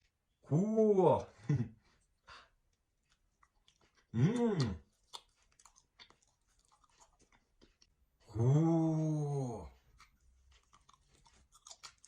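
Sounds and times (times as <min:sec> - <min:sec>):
person chewing crunchily: 0:03.0 - 0:08.4, 0:09.7 - 0:12.0.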